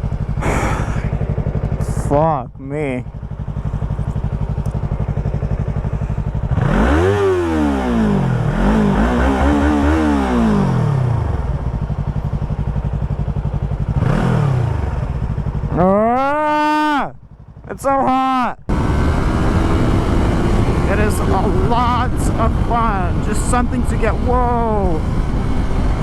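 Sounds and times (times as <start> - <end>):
wind and road noise: 0.0 - 15.7, 18.7 - 26.0
motorcycle engine revving: 0.0 - 16.2, 17.2 - 17.8, 18.7 - 26.0.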